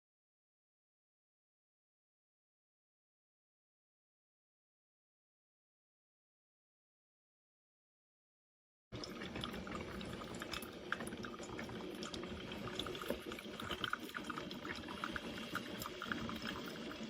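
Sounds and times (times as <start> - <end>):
liquid coffee trickling: 9.0 - 17.0.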